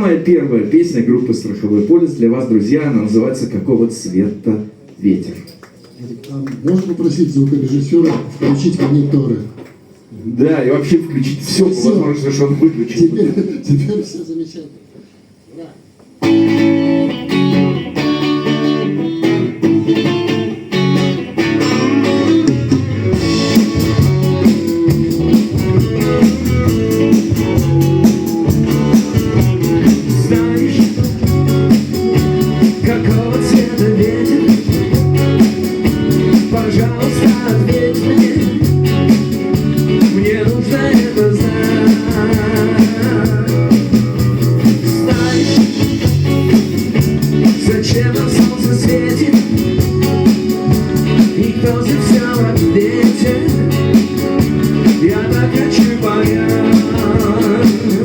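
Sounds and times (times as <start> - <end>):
electric guitar: 16.0 - 58.0
rock band playing: 16.2 - 58.0.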